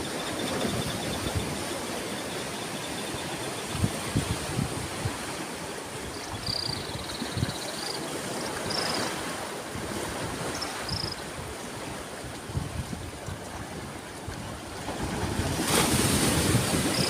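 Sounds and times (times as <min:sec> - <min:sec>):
wind buffeting microphone: 0:03.6 - 0:05.4, 0:06.0 - 0:07.8, 0:12.4 - 0:17.0
sea waves washing onto shore: 0:07.2 - 0:17.0.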